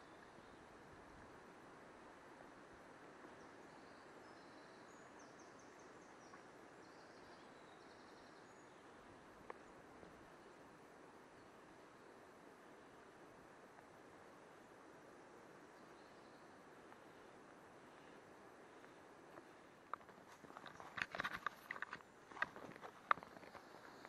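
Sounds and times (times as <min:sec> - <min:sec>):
low steady hiss: 0:00.0 - 0:24.0
songbird chirping and trilling: 0:03.3 - 0:10.7, 0:15.1 - 0:16.6.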